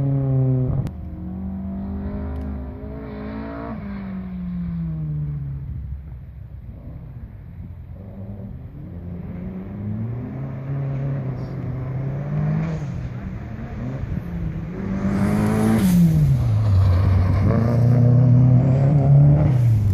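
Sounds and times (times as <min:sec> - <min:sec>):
car engine revving: 0:00.0 - 0:05.8, 0:06.6 - 0:19.9
car passing with rush: 0:00.0 - 0:19.9.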